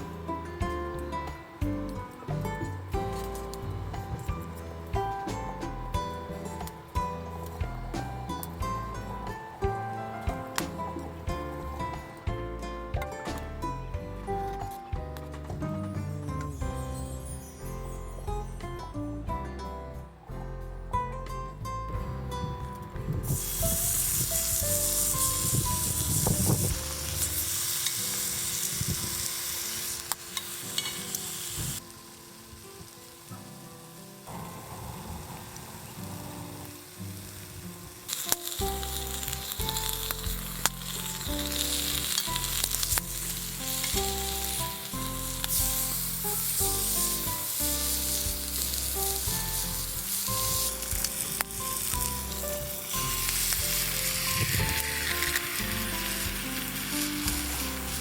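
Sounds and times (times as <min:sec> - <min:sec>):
background music: 0:00.0 - 0:33.3, 0:38.0 - 0:58.0
food sizzling in a pan: 0:23.2 - 0:58.0.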